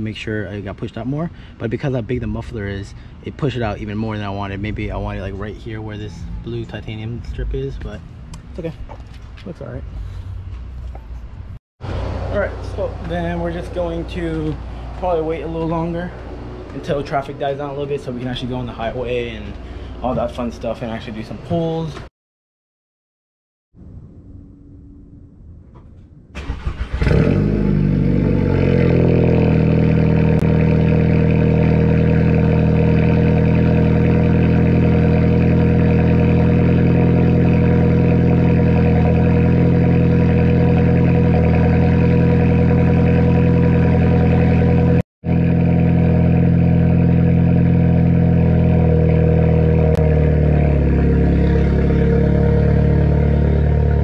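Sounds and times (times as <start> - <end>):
car engine starting and idling: 26.3 - 54.0.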